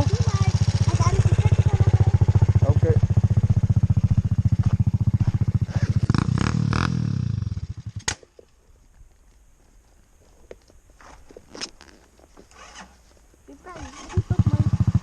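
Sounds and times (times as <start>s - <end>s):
quad bike engine idling: 0.0s - 8.6s, 13.5s - 15.0s.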